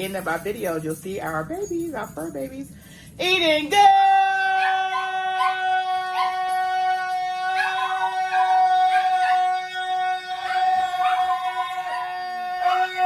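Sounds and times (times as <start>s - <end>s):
dogs howling and yipping: 4.0s - 13.0s.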